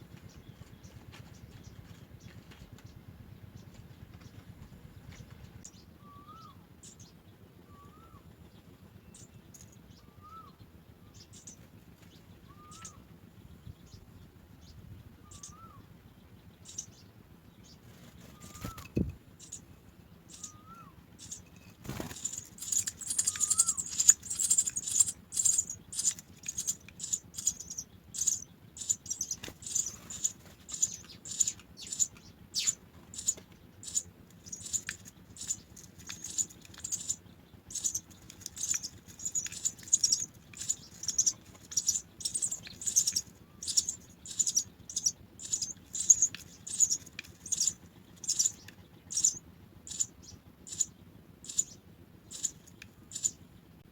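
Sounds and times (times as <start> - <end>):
nestlings chirping: 9.0 - 53.6.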